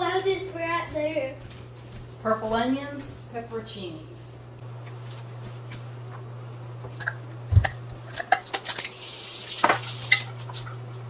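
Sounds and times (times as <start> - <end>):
steady low hum: 0.0 - 11.0
utensils and dishes clinking: 7.0 - 10.7.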